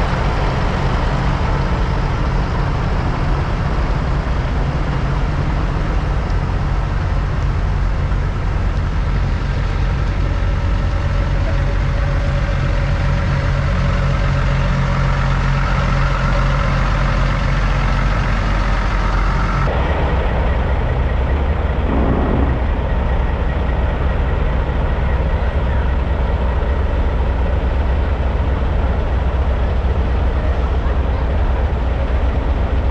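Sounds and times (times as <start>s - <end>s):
diesel truck engines rumbling: 0.0s - 32.9s
short falling tone: 21.9s - 22.9s.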